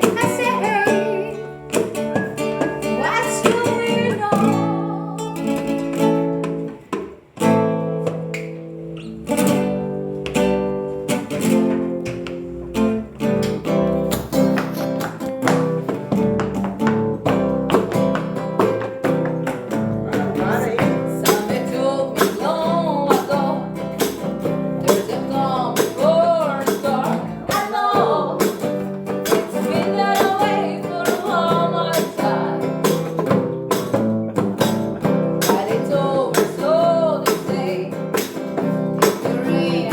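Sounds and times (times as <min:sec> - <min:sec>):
person singing: 0:00.0 - 0:01.7, 0:02.9 - 0:05.6, 0:19.9 - 0:23.8, 0:24.8 - 0:33.4, 0:35.0 - 0:38.4, 0:39.0 - 0:39.9
acoustic guitar strumming: 0:00.0 - 0:39.9.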